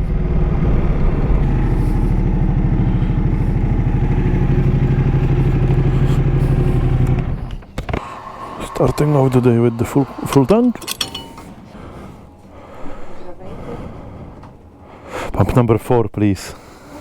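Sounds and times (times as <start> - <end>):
motorcycle engine running at low revs: 0.0 - 8.0.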